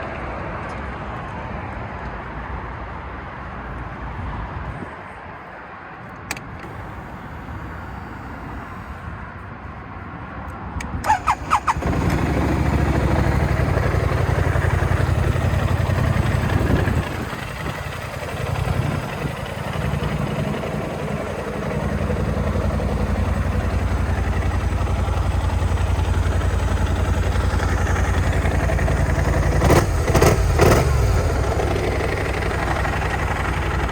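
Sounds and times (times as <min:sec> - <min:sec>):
clicks: 0:06.2 - 0:07.2
scooter engine idling: 0:06.6 - 0:09.1, 0:11.0 - 0:33.9
starter cranking: 0:11.0 - 0:14.0.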